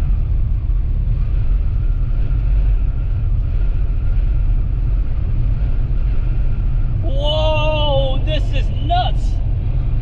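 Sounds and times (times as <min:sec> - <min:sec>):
car interior driving rumble: 0:00.0 - 0:10.0.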